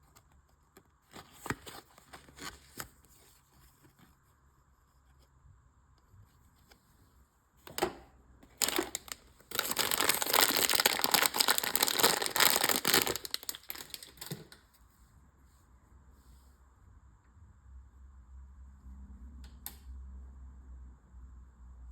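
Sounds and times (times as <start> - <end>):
plastic packaging crinkling: 8.5 - 14.6.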